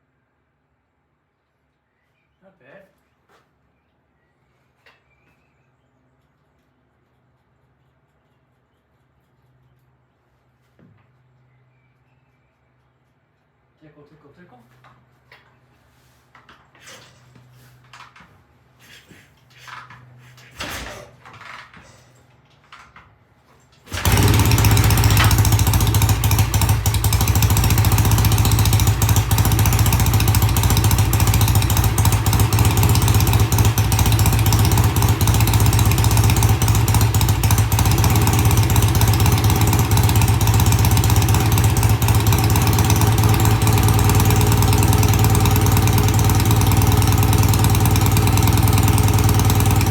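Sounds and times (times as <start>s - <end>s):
faint knocks and rustles: 6.2s - 11.6s
motorcycle engine starting and running: 23.8s - 49.9s.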